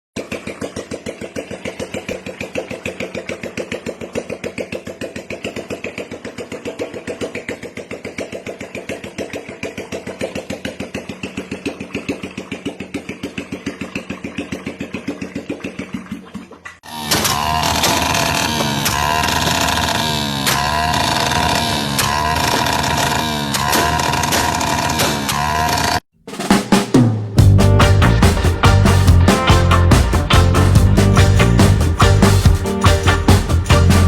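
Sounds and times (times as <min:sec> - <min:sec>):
engine running at slow beat: 0:00.2 - 0:15.7, 0:27.4 - 0:34.0.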